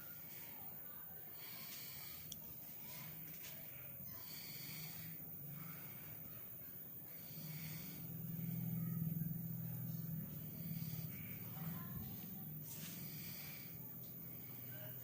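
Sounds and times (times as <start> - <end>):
motorcycle engine rumbling: 3.9 - 15.0.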